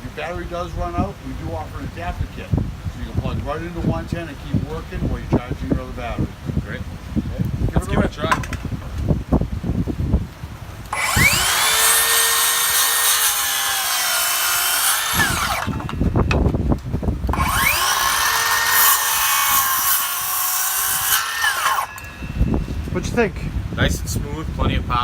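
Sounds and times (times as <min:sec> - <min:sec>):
circular saw cutting wood: 0:10.9 - 0:16.3, 0:17.3 - 0:23.0.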